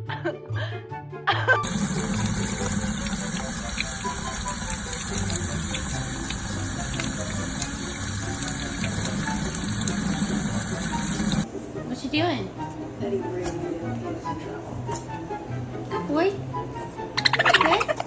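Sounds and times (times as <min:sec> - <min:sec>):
water running steadily: 0:01.6 - 0:11.5.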